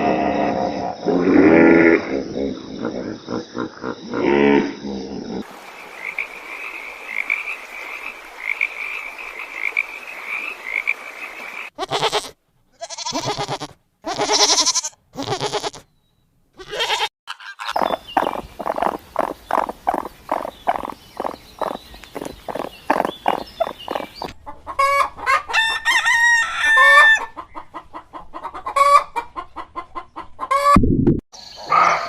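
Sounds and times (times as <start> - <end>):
loud animal calls: 16.6 - 25.0, 31.6 - 32.0
high chirping: 17.7 - 24.3.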